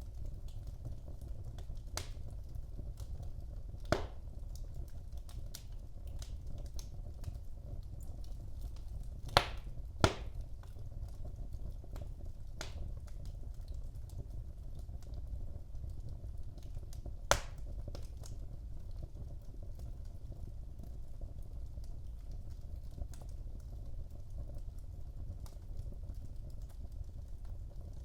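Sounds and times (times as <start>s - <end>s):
fire crackling: 0.0s - 28.0s
low rumble of flame: 0.0s - 28.0s
sharp pops of burning wood: 0.2s - 13.4s, 16.6s - 18.4s.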